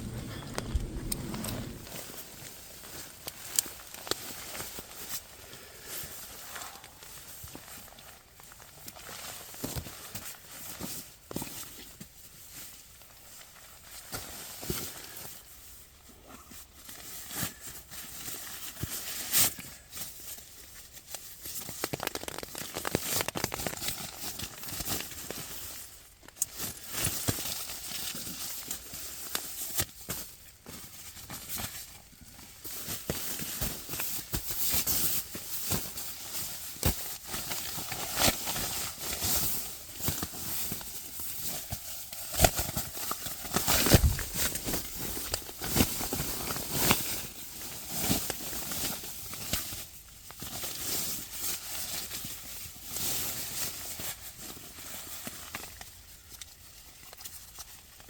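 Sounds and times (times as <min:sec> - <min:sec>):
rustling and crackling: 0:00.0 - 0:58.0.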